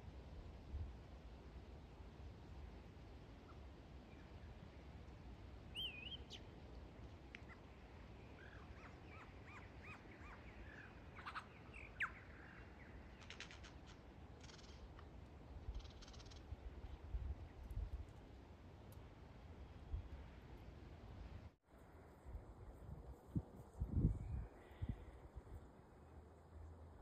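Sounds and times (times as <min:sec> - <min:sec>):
lyrebird singing: 0:05.7 - 0:06.5, 0:08.4 - 0:13.7, 0:15.7 - 0:16.5
dry rattling bird calls: 0:13.1 - 0:15.0, 0:15.7 - 0:16.5.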